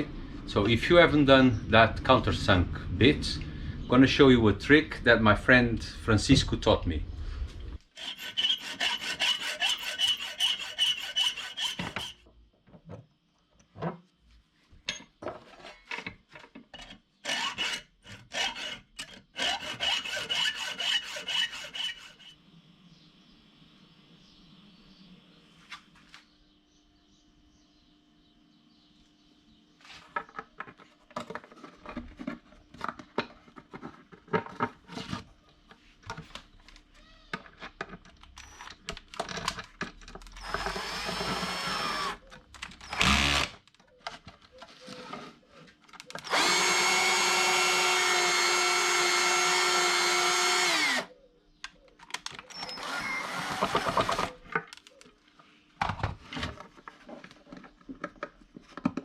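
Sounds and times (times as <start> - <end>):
power drill whining: 17.3 - 22.0, 40.4 - 42.2, 42.8 - 43.6, 46.2 - 51.1, 52.5 - 54.4.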